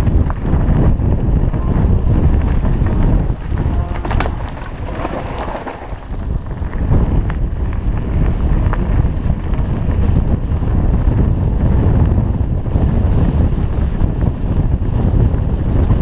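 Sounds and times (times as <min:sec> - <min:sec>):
bike clicks and rattles: 0:00.0 - 0:11.2
wind buffeting microphone: 0:00.0 - 0:16.0.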